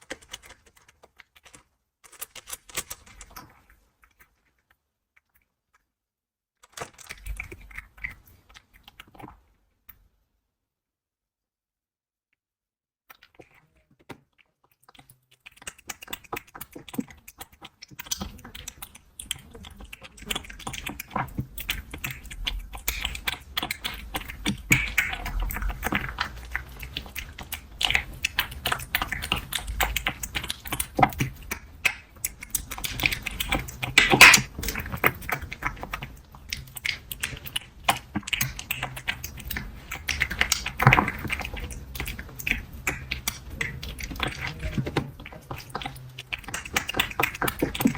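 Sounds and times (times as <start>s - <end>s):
cat mouth clicks and crunches: 0.0s - 5.8s, 6.6s - 10.0s, 13.1s - 47.9s.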